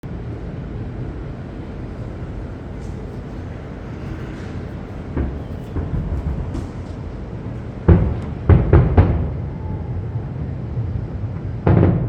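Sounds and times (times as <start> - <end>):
fireworks rumbling bursts: 0.0 - 12.0
sharp firework bang: 5.1 - 9.6, 11.6 - 12.0.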